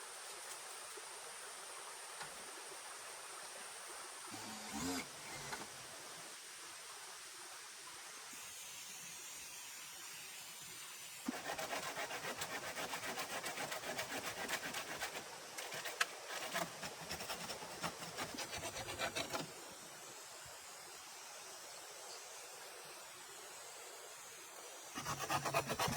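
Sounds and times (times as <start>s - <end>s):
rapid scraping strokes: 11.3s - 19.5s, 25.0s - 25.9s.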